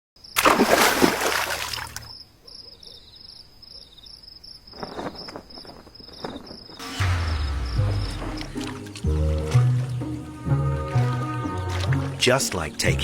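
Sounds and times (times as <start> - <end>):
water splashing: 0.4 - 2.1, 6.9 - 13.0
faint high chirping: 2.1 - 8.6.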